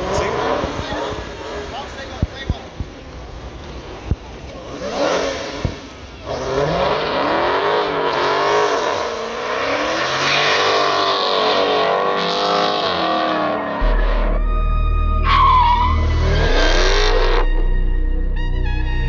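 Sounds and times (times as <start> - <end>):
car engine revving hard: 0.0 - 2.3, 4.6 - 14.4, 15.5 - 17.6.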